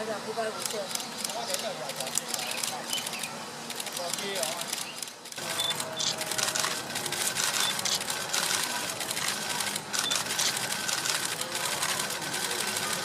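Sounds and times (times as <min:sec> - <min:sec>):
birds chittering: 0:02.3 - 0:03.4.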